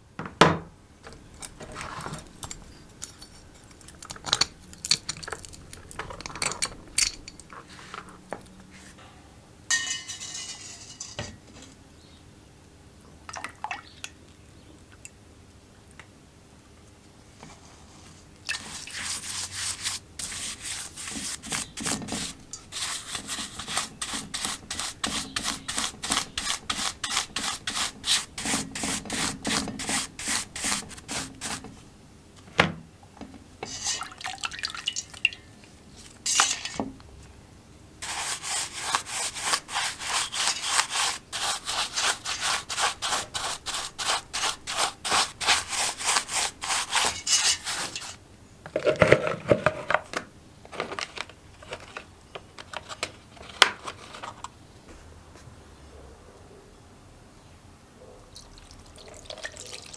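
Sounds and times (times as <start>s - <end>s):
abrasive rubbing strokes: 38.0s - 48.2s.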